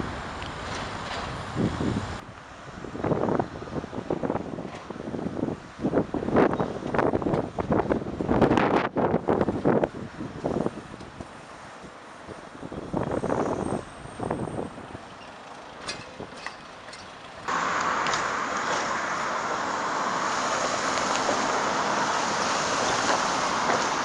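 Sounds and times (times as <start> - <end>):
wind hitting microphone: 0.0 - 15.2
road traffic rushing: 0.0 - 24.0.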